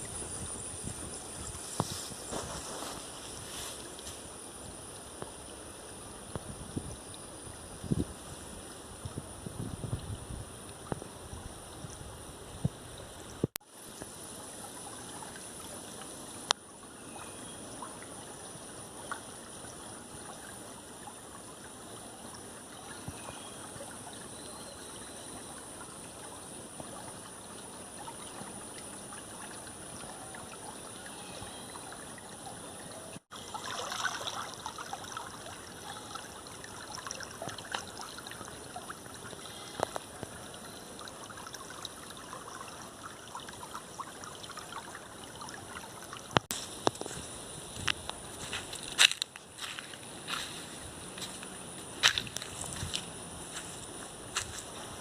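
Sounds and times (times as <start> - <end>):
small stream trickling: 0.0 - 55.0
water splashing: 33.2 - 47.2.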